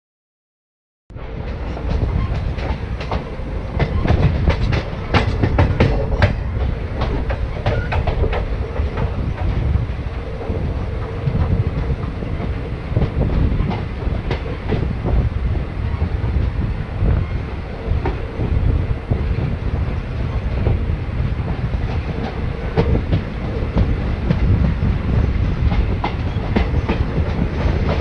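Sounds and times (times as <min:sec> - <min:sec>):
train coach rumble: 0:01.1 - 0:28.0
wheels clicking over rail joints: 0:01.5 - 0:14.9.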